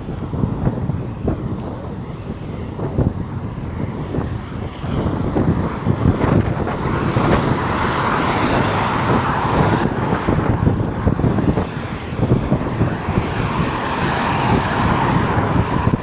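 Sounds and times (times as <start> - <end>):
vehicle passing on highway: 0.0 - 16.0
wind buffeting microphone: 0.0 - 16.0.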